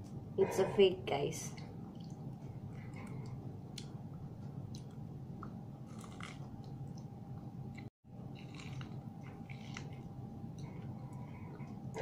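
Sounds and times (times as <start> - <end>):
steady background hum: 0.0 - 12.0
chewing with crunches: 4.6 - 7.1, 7.7 - 12.0.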